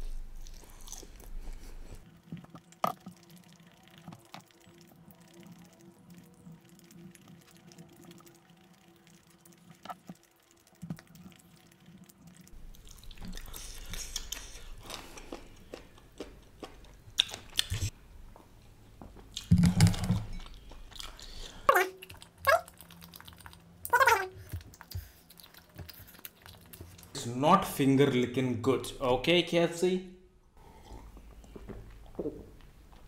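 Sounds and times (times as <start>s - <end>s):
chewing fried chicken: 0.4s - 17.9s, 20.4s - 27.2s.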